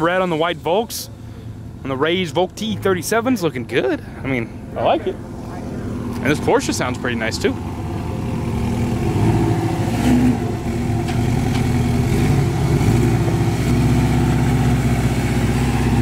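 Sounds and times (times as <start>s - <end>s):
car engine pulling away: 4.0s - 16.0s.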